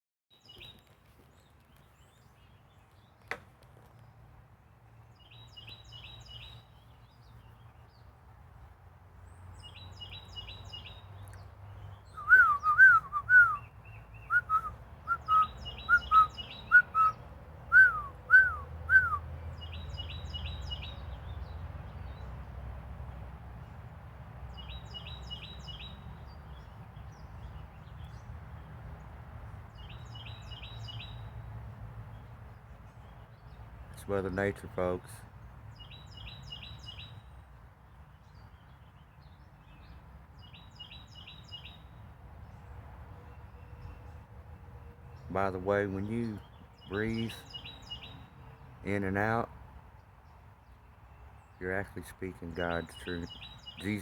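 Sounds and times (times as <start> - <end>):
birds chirping: 0.3 - 22.5, 24.5 - 31.4, 32.0 - 44.3, 45.1 - 54.0
bird whistling sliding notes: 12.2 - 13.6.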